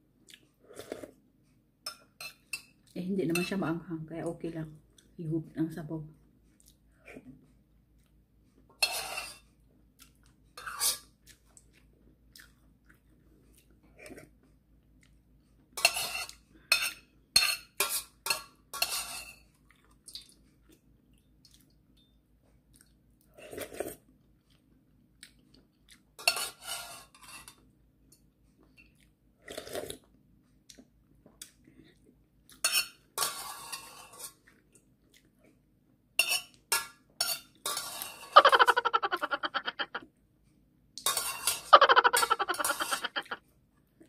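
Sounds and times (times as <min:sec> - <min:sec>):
chewing: 0:00.2 - 0:01.2, 0:06.4 - 0:08.7, 0:09.6 - 0:16.4, 0:19.5 - 0:26.2, 0:34.3 - 0:35.7
spoon scraping metal pot: 0:08.8 - 0:09.5, 0:10.6 - 0:11.1, 0:26.2 - 0:27.6, 0:36.2 - 0:40.0, 0:41.0 - 0:43.4.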